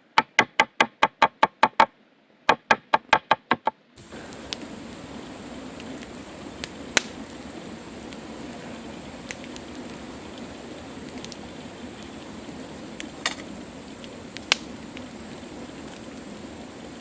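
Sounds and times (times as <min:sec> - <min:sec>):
campfire crackling and popping: 0:04.0 - 0:17.0.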